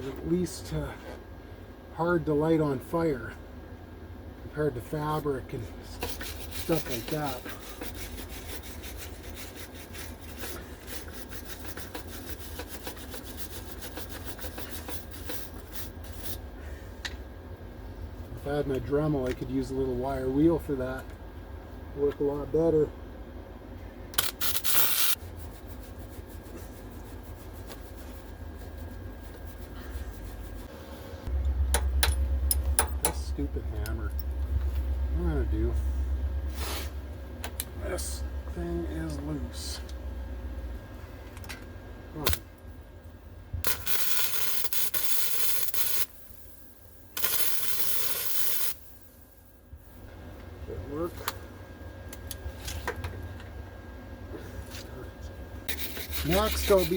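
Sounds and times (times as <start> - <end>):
wire brush scrubbing steel: 5.9 - 16.4, 55.7 - 56.9
low hum: 15.5 - 43.9
welder crackling hiss: 24.2 - 25.2, 43.6 - 49.1.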